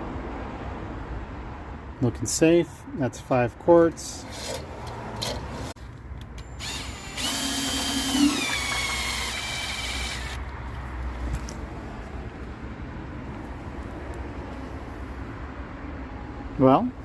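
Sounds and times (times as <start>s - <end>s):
electric drill whining: 6.6s - 10.4s.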